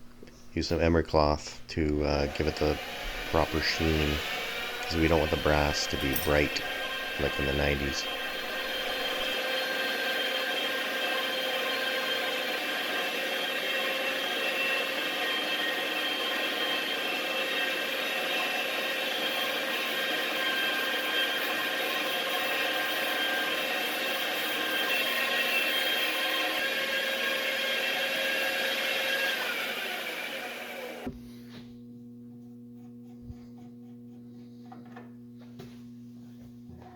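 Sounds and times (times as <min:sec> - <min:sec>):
electric drill motor whining: 0:02.0 - 0:31.2
emery cloth polishing metal bar: 0:02.1 - 0:09.4.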